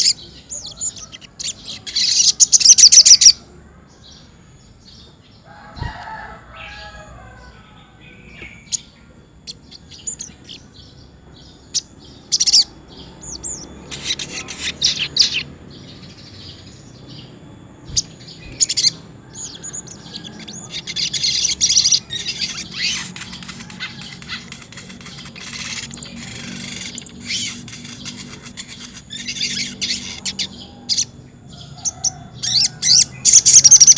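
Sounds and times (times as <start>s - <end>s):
bird singing sharp chirps: 8.1s - 10.9s, 11.5s - 31.1s.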